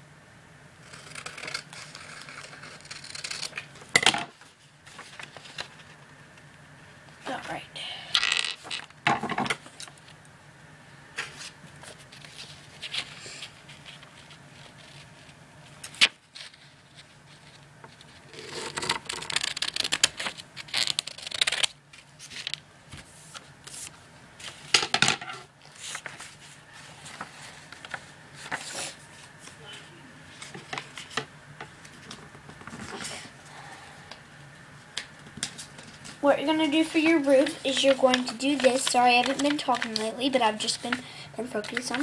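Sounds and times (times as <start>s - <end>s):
paper rustling and crinkling: 0.8s - 6.0s, 11.2s - 24.7s, 25.6s - 33.3s, 35.2s - 42.0s.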